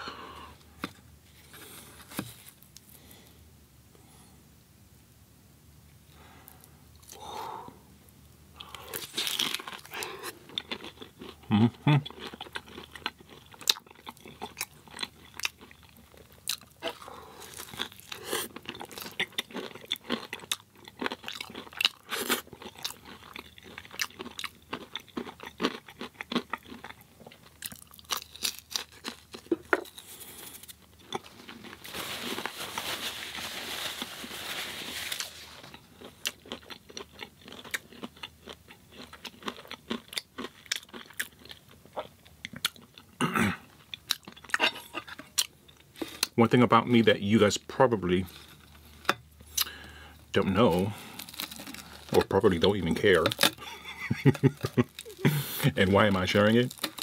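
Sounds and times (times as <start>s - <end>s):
rustling noise: 0.9s - 2.7s, 30.1s - 35.7s
crunchy chewing: 8.6s - 33.0s, 35.0s - 43.1s, 50.6s - 57.0s.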